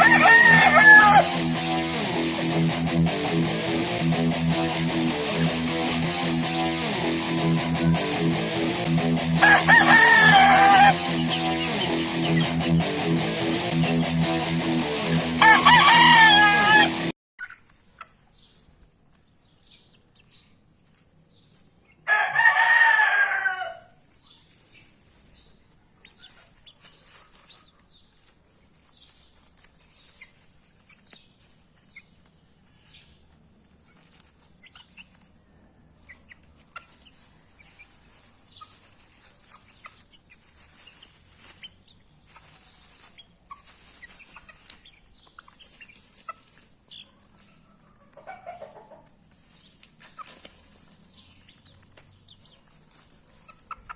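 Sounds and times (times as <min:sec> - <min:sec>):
rooster crowing: 0:00.0 - 0:01.4, 0:09.4 - 0:11.0, 0:15.4 - 0:17.1, 0:22.1 - 0:24.0
chicks clucking and peeping: 0:00.0 - 0:14.8, 0:15.4 - 0:53.9.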